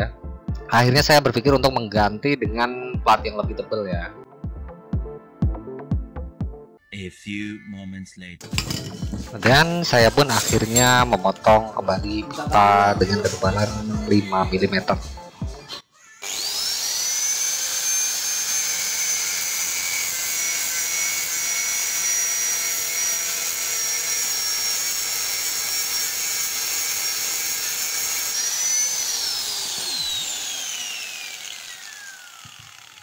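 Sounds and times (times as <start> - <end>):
angle grinder cutting steel: 8.4 - 14.9, 16.2 - 33.0.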